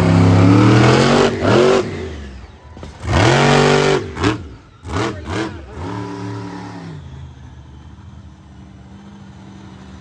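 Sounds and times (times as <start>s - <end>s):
truck engine revving: 0.0s - 7.8s.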